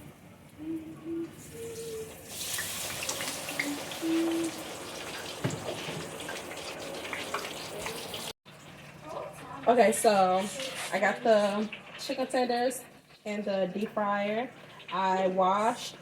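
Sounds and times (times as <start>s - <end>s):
food sizzling in hot oil: 2.1s - 9.0s.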